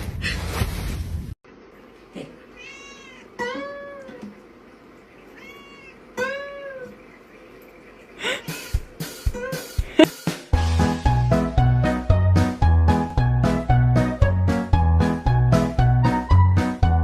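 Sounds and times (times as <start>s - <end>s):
cat meowing: 2.5s - 4.2s, 5.3s - 6.9s.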